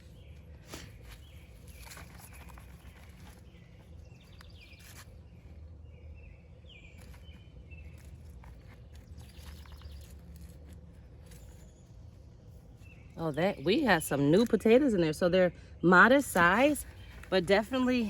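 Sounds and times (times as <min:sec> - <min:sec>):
hands digging through soil: 0:00.0 - 0:05.8, 0:06.9 - 0:14.6, 0:16.2 - 0:18.0
bird chirps: 0:00.0 - 0:10.6.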